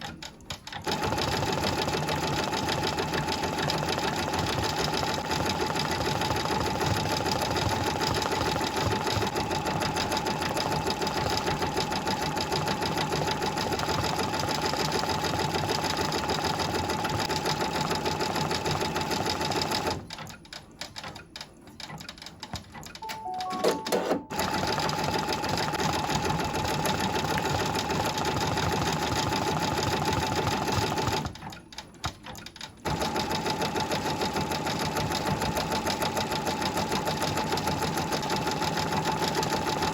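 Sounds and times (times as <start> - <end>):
embroidery machine stitching: 0.1 - 23.0, 23.9 - 39.9
short electronic tones: 23.0 - 24.5.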